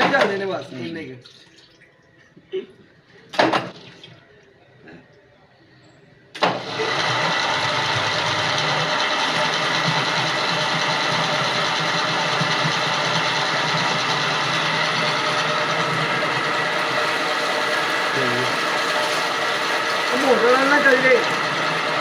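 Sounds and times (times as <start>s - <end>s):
motor-driven machine running: 6.4s - 22.0s.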